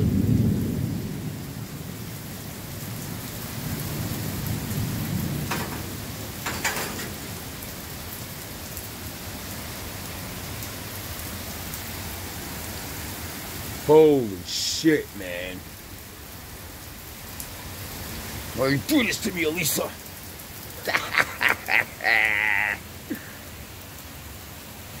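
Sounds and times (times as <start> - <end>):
heavy rain pouring: 0.0 - 25.0
thunder rumbling: 3.1 - 7.8.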